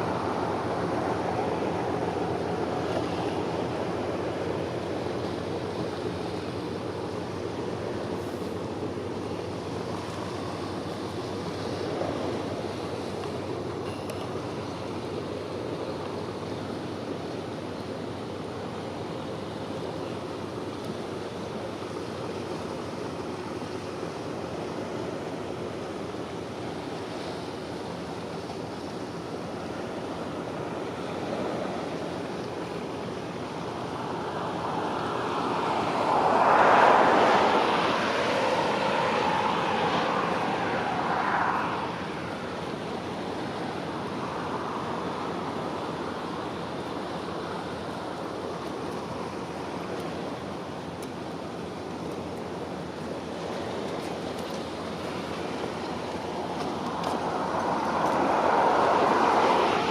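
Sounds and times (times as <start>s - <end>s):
water rushing: 0.0s - 59.9s
wind rushing: 34.1s - 42.0s.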